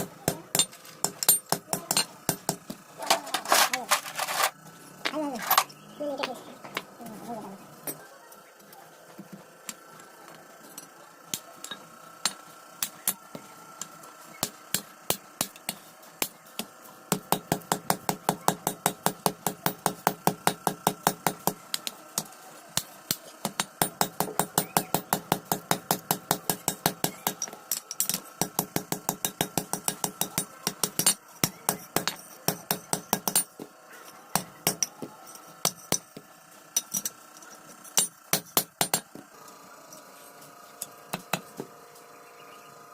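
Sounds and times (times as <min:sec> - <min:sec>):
hammer striking iron on anvil: 0:23.1 - 0:33.6, 0:35.6 - 0:36.2, 0:38.0 - 0:39.1.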